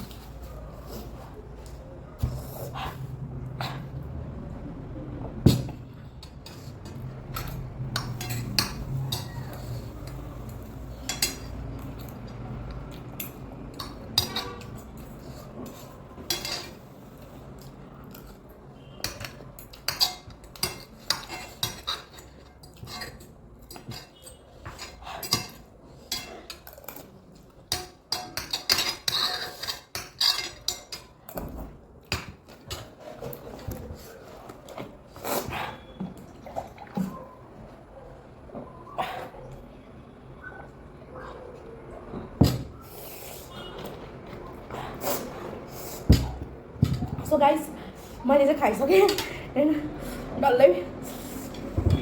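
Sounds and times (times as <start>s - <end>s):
utensils clinking against dishes: 5.4s - 37.4s, 41.9s - 49.9s.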